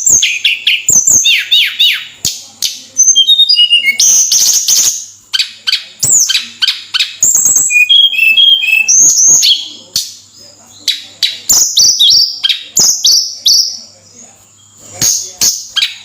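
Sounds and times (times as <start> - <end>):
songbird whistling song: 0.0 - 2.2, 2.9 - 10.2, 10.8 - 13.9.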